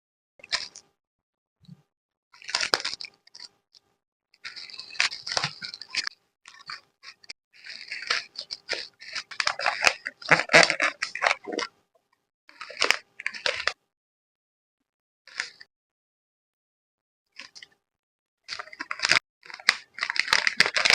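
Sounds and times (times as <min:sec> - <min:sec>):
plastic packaging crinkling: 0:02.4 - 0:03.5, 0:04.4 - 0:06.8, 0:07.6 - 0:11.7, 0:12.6 - 0:13.8, 0:18.5 - 0:20.9.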